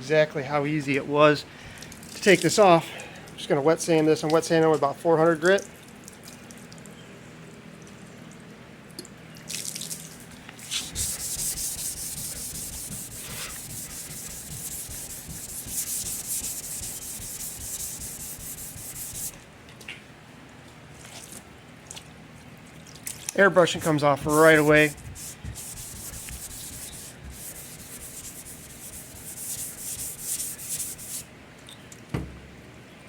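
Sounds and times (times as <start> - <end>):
wet sanding by hand: 10.6 - 19.4, 24.2 - 31.2.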